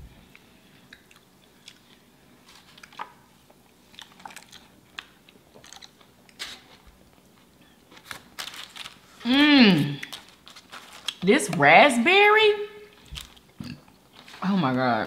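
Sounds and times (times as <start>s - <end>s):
burger being bitten and chewed: 3.9s - 9.0s.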